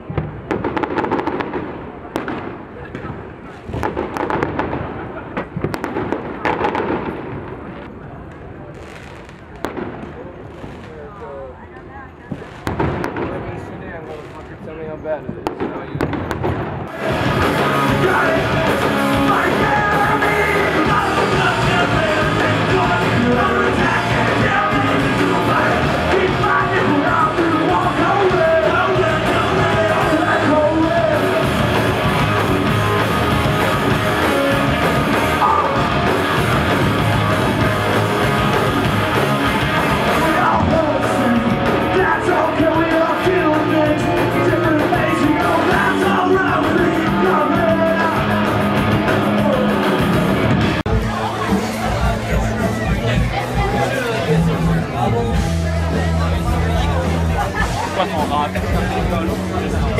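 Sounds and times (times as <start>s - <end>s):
punk rock band playing live: 16.9s - 59.9s
person shouting singing: 17.0s - 32.3s, 35.2s - 36.4s, 39.8s - 50.0s.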